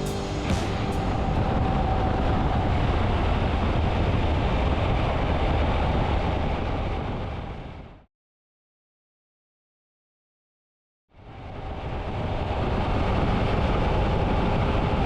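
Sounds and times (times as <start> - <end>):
motorcycle engine riding: 0.0 - 2.3
wind noise: 0.0 - 8.1, 11.2 - 15.0.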